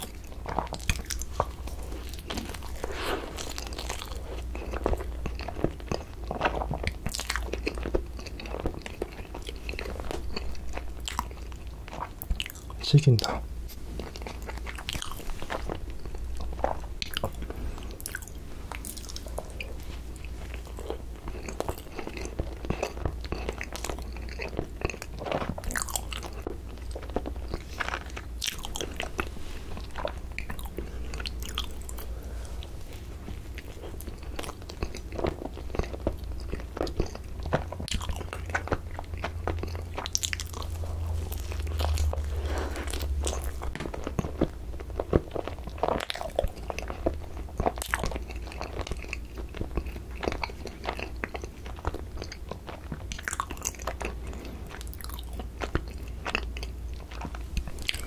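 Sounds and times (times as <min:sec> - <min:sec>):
chewing with wet mouth clicks: 0:00.0 - 0:58.0
steady low hum: 0:00.0 - 0:58.0.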